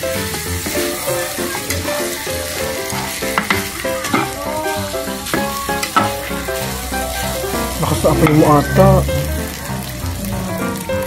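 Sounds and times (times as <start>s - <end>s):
background music melody: 0.0s - 11.0s
food sizzling in frying pan: 0.0s - 11.0s
metal spatula scraping pan: 0.3s - 8.8s.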